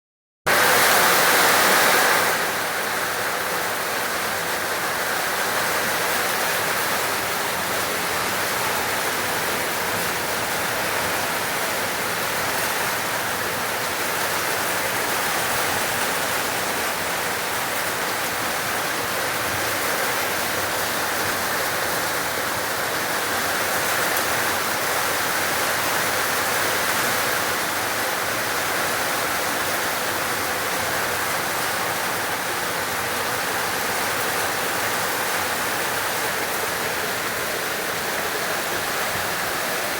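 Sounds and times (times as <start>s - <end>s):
heavy rain falling: 0.5s - 39.9s.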